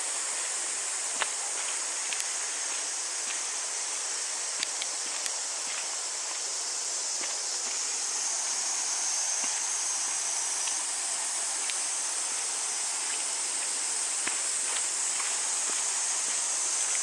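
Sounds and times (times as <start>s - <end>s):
high-pitched cicada chorus: 0.0s - 17.0s.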